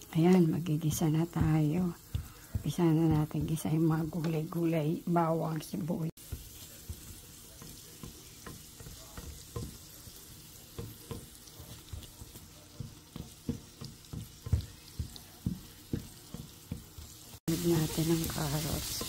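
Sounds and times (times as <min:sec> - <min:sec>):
onion and garlic sizzling in oil: 0:00.0 - 0:19.0
spatula scraping pan: 0:06.1 - 0:19.0.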